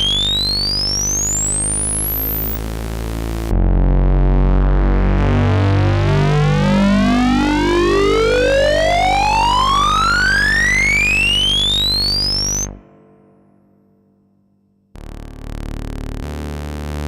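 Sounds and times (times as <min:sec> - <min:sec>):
synthesizer riser sweeping upward: 0:05.0 - 0:12.8.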